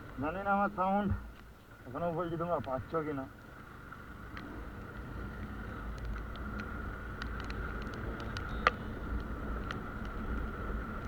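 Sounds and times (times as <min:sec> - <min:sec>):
wind: 0:00.0 - 0:11.0
motorcycle engine rumble: 0:04.0 - 0:11.0
light clicks: 0:04.3 - 0:10.5.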